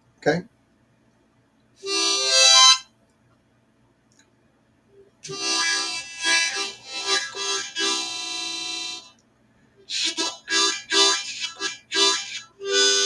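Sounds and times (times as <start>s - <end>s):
harmonica chords: 1.8s - 2.9s, 5.2s - 9.1s, 9.9s - 13.0s.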